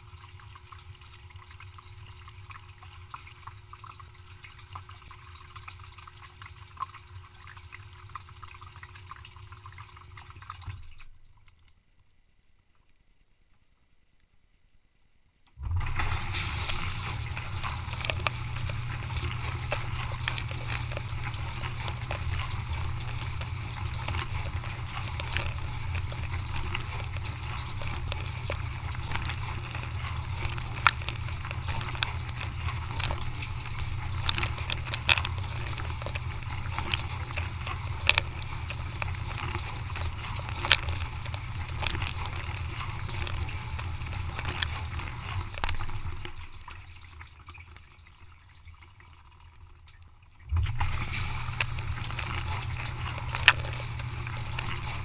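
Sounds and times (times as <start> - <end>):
dishwasher pump hum: 15.5 - 55.0
water spraying and sloshing: 15.7 - 55.0.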